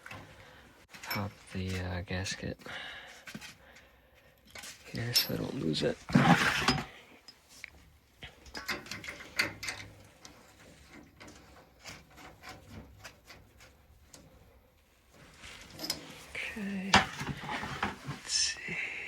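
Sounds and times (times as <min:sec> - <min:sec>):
light clicks and small knocks: 0:06.8 - 0:18.1.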